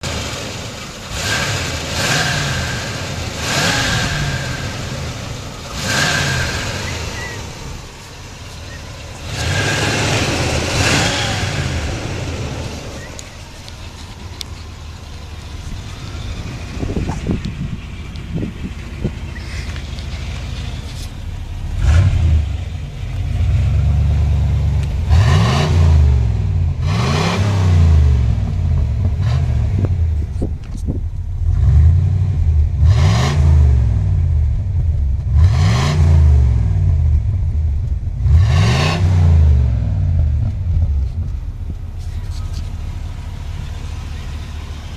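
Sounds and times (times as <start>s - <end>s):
car engine idling and revving: 0.0s - 44.9s.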